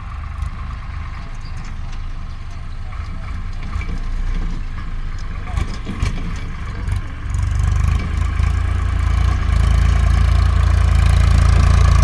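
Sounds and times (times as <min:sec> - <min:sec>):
tractor engine chugging: 0:00.0 - 0:12.0.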